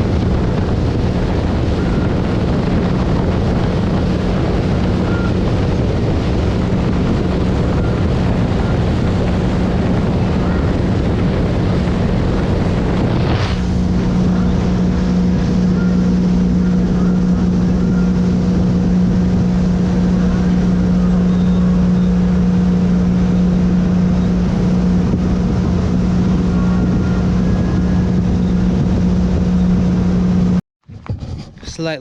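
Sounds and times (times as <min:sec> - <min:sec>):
boat engine running: 0:00.0 - 0:32.0
wind buffeting microphone: 0:00.0 - 0:32.0
brief rush of noise: 0:13.0 - 0:13.8.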